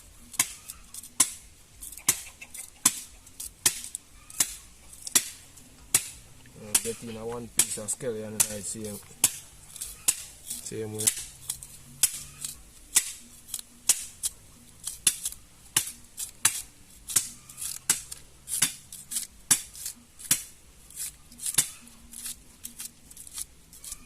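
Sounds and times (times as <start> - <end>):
knife chopping scallion: 6.0 - 24.0.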